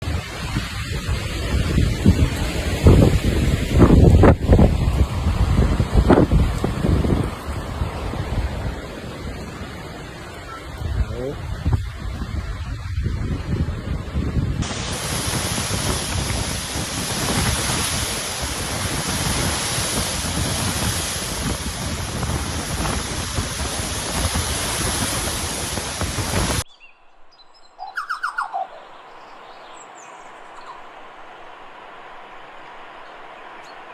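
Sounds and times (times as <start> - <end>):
strong wind rushing through trees: 0.0 - 26.9
bird chirps: 26.7 - 30.9.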